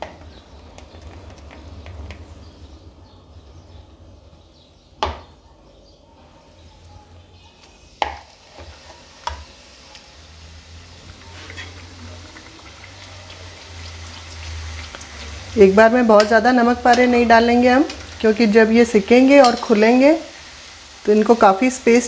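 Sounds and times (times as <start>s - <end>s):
dough crackling in hot oil: 0.0s - 2.9s, 7.6s - 22.0s.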